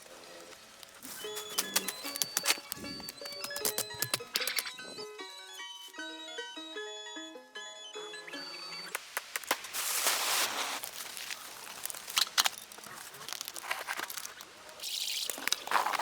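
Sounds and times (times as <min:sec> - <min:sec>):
crinkling and rustling: 0:00.0 - 0:04.8, 0:09.0 - 0:16.0
sharp clicks: 0:01.4 - 0:04.8.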